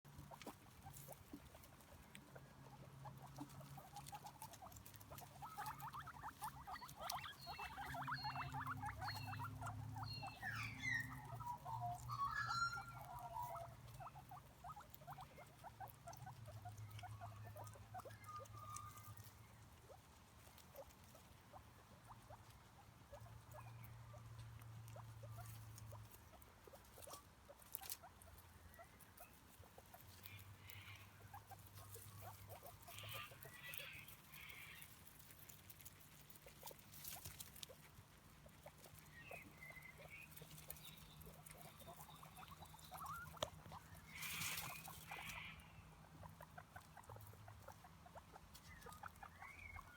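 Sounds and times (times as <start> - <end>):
rabbits chewing grass: 0.0 - 49.9
short high chirping calls: 6.6 - 13.6.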